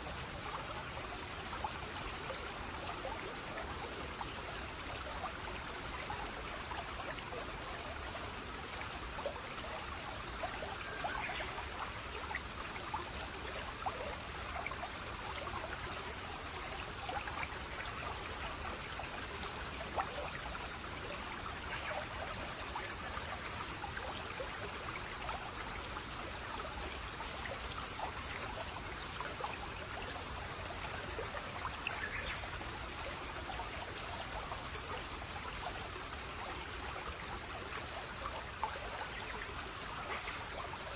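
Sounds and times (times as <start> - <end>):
stream trickling and splashing: 0.0 - 40.9.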